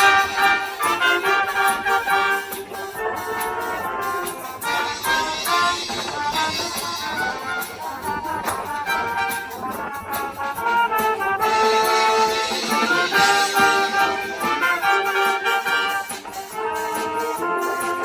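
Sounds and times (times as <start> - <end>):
brass band playing: 0.0 - 18.0.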